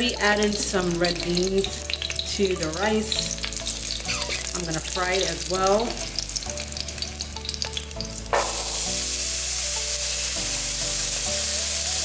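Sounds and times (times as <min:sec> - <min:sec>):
beans sizzling in oil: 0:00.0 - 0:12.0
oil crackling: 0:00.4 - 0:12.0.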